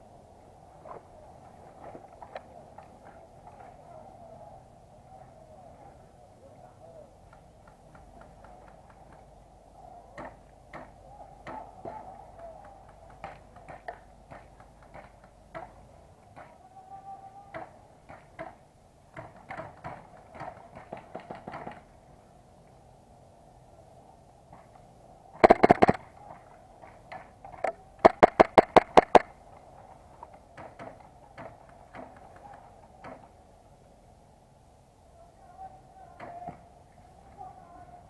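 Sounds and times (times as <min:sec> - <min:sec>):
distant airsoft guns firing: 0:25.4 - 0:26.0, 0:28.0 - 0:29.3.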